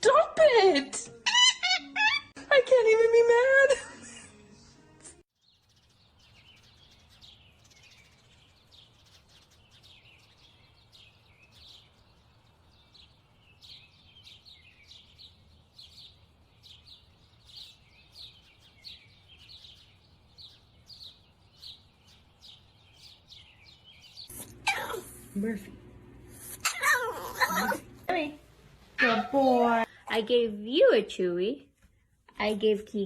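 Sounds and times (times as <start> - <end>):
small birds chirping: 5.4 - 28.3
low hum: 24.3 - 28.8.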